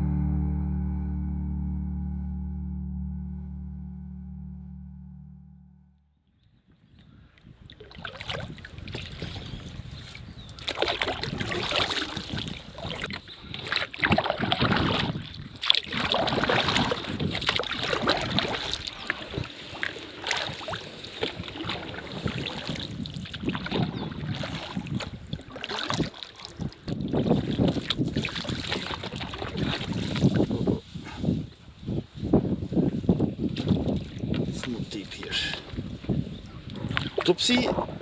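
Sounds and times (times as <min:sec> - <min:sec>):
wind buffeting microphone: 0:06.5 - 0:38.0
water splashing around a canoe: 0:07.3 - 0:31.4, 0:32.6 - 0:38.0.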